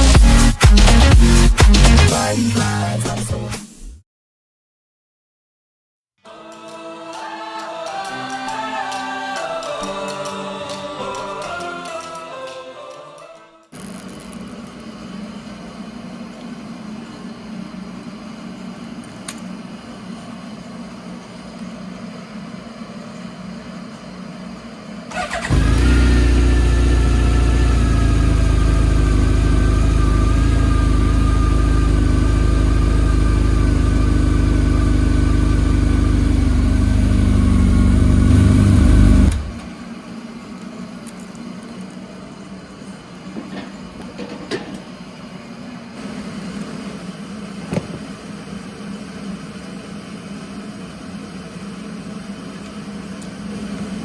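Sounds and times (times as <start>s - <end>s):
motorcycle engine running: 25.1s - 39.7s.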